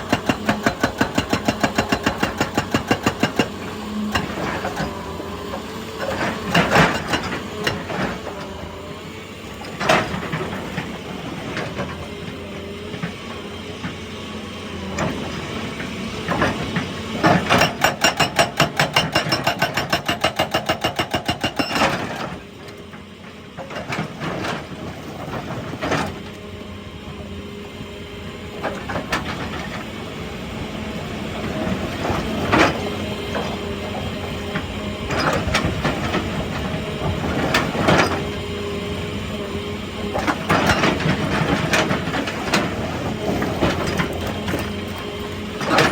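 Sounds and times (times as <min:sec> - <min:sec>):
excavator engine running: 0:00.0 - 0:45.9.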